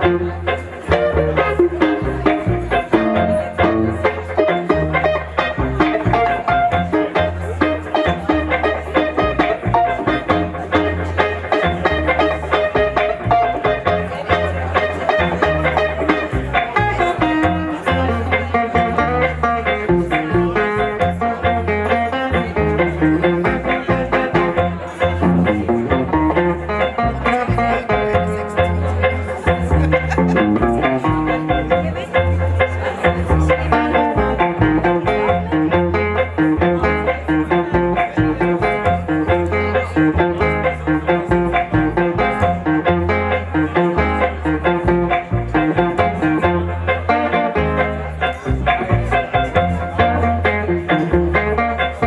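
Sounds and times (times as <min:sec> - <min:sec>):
guitar melodic line: 0:00.0 - 0:52.0
live blues band playing: 0:00.0 - 0:52.0.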